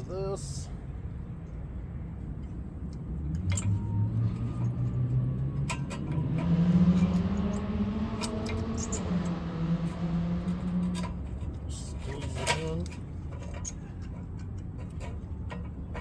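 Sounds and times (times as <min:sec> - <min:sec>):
vehicle engine running: 0:03.1 - 0:16.0
light metal clinks: 0:08.2 - 0:09.2, 0:10.6 - 0:16.0.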